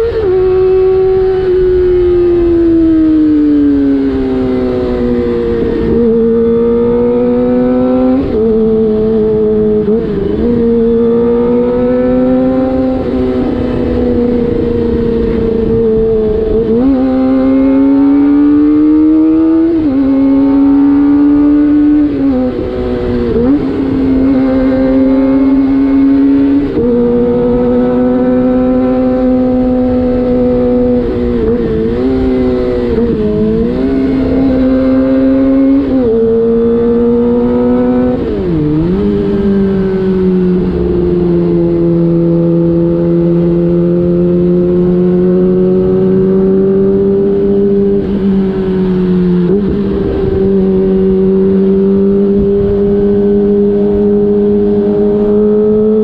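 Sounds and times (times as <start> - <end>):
motorcycle engine revving: 0.0 - 56.0
wind rush: 47.0 - 55.0.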